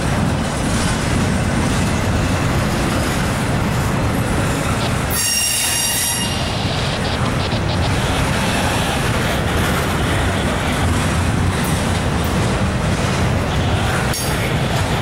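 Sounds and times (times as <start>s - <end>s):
train wheels rumbling on rail: 0.0s - 15.0s
high-pitched wheel squeal: 5.1s - 7.4s.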